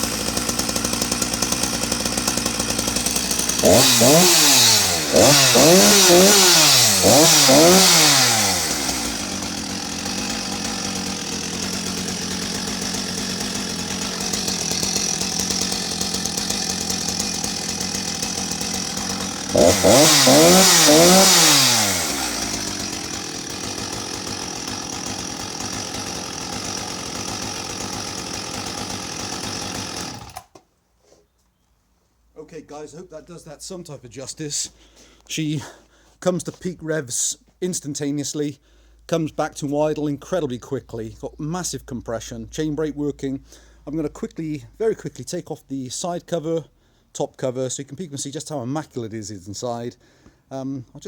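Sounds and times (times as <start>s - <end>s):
chainsaw revving and idling: 0.0s - 30.6s.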